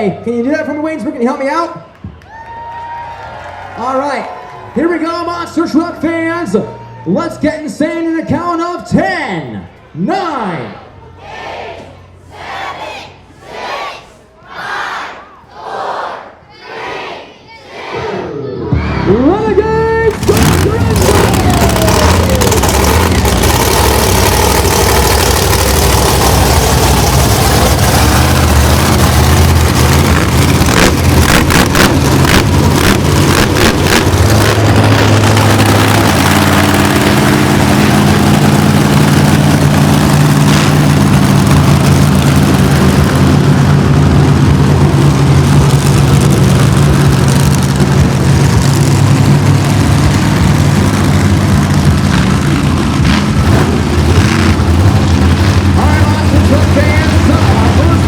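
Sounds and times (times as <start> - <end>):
monster truck engines revving: 0.0 - 58.0
engine pops: 19.9 - 58.0.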